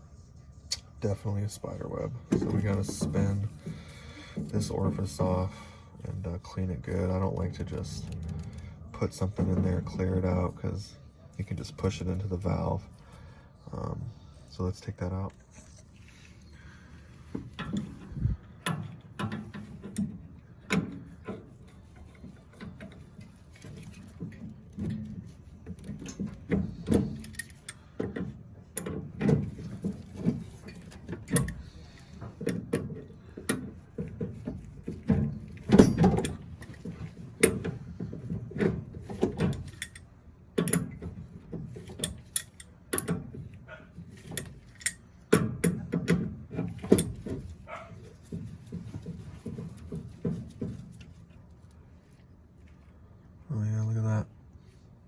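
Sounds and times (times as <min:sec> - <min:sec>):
hand tools clinking on metal: 0:20.7 - 0:38.4, 0:39.0 - 0:45.9.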